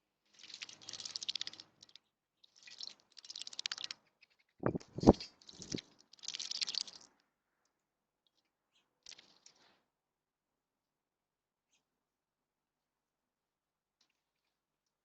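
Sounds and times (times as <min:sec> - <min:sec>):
bird splashing in water: 0:00.4 - 0:01.9, 0:04.6 - 0:07.0.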